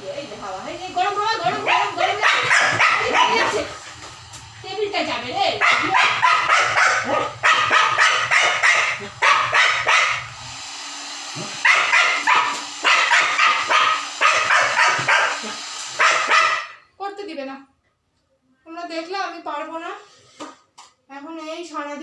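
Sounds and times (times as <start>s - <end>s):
dog barking and yapping: 1.4s - 3.8s, 5.6s - 10.3s, 11.6s - 16.8s.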